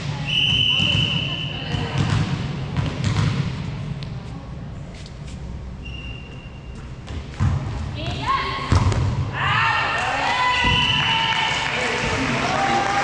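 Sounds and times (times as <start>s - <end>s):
volleyball thuds: 7.1s - 9.3s.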